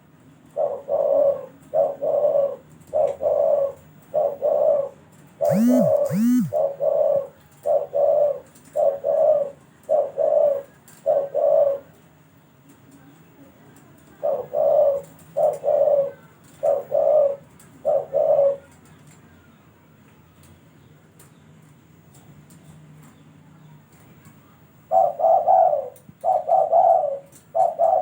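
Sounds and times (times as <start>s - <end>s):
dove cooing: 0.6s - 4.9s, 6.8s - 11.8s, 14.2s - 18.6s, 24.9s - 28.0s.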